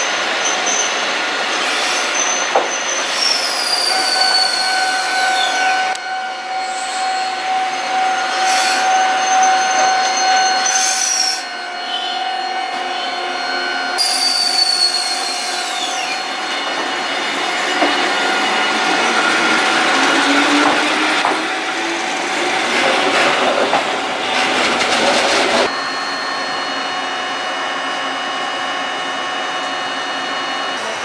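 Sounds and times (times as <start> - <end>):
electric train whine: 0.0 - 31.0
steady train hum: 0.0 - 31.0
train rumbling and screeching: 0.0 - 31.0.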